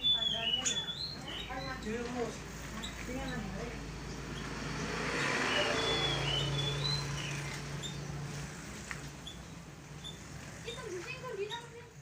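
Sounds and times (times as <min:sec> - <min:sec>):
high bird chirps: 0:00.0 - 0:08.6.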